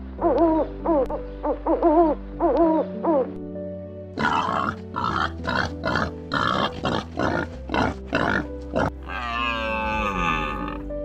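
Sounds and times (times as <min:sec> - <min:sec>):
background music: 0:00.0 - 0:11.0
animal grunting: 0:04.2 - 0:10.9.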